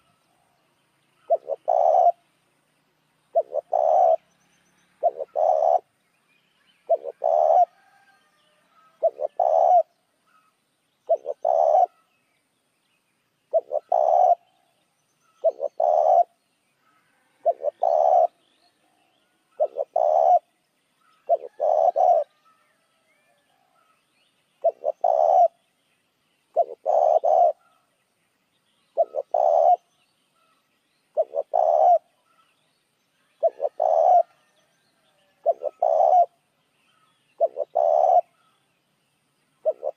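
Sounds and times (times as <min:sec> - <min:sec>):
dove cooing: 0:01.2 - 0:02.2, 0:03.3 - 0:04.2, 0:05.0 - 0:05.9, 0:06.8 - 0:08.1, 0:08.8 - 0:10.5, 0:11.1 - 0:12.1, 0:13.5 - 0:14.7, 0:15.4 - 0:18.5, 0:19.5 - 0:20.5, 0:21.1 - 0:22.6, 0:24.6 - 0:25.6, 0:26.5 - 0:27.8, 0:29.0 - 0:29.9, 0:31.1 - 0:32.4, 0:33.3 - 0:34.5, 0:35.3 - 0:38.5, 0:39.6 - 0:39.9.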